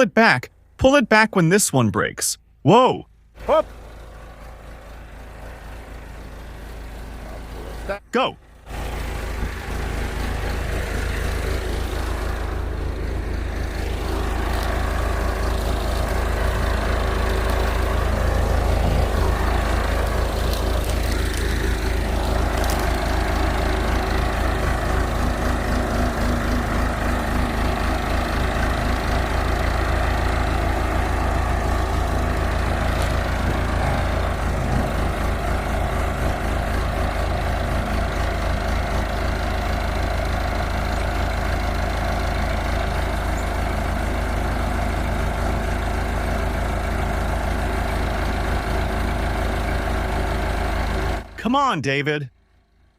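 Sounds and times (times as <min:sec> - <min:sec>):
diesel engine rumbling: 0:00.0 - 0:52.9.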